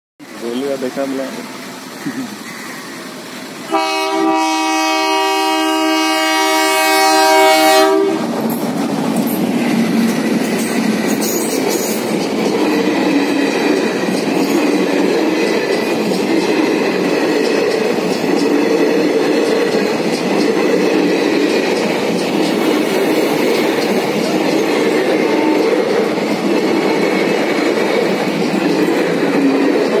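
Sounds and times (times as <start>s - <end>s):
train coaches rushing past: 0.2s - 30.0s
locomotive horn blast: 3.7s - 8.3s, 25.2s - 25.9s
wheels clattering on track: 8.1s - 30.0s.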